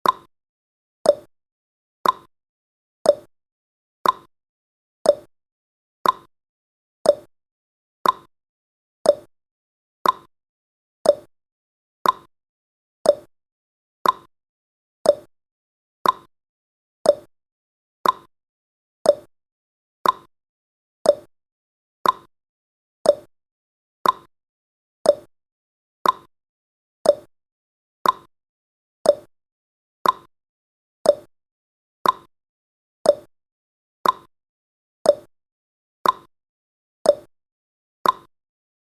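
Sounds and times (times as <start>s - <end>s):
timer ticking: 0.0s - 0.3s, 1.0s - 1.3s, 2.0s - 2.3s, 3.1s - 3.3s, 4.0s - 4.3s, 5.1s - 5.3s, 6.0s - 6.3s, 7.0s - 7.3s, 8.0s - 8.3s, 9.0s - 9.3s, 10.0s - 10.3s, 11.0s - 11.3s, 12.0s - 12.3s, 13.0s - 13.3s, 14.0s - 14.3s, 15.0s - 15.3s, 16.0s - 16.3s, 17.0s - 17.3s, 18.0s - 18.3s, 19.0s - 19.3s, 20.0s - 20.3s, 21.0s - 21.3s, 22.0s - 22.3s, 23.0s - 23.3s, 24.0s - 24.3s, 25.0s - 25.3s, 26.0s - 26.3s, 27.0s - 27.3s, 28.0s - 28.3s, 29.0s - 29.3s, 30.0s - 30.3s, 31.0s - 31.3s, 32.0s - 32.3s, 33.0s - 33.3s, 34.0s - 34.3s, 35.1s - 35.3s, 36.0s - 36.3s, 37.1s - 37.3s, 38.0s - 38.3s.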